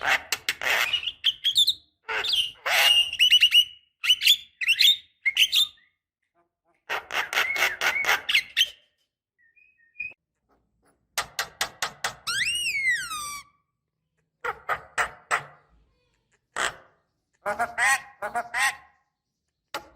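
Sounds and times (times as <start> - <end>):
faint bird chirps: 7.5 - 10.2.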